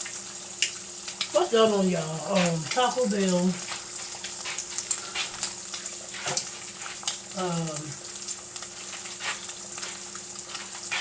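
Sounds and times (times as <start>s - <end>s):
food sizzling in a pan: 0.0s - 11.0s
person murmuring: 7.4s - 8.0s.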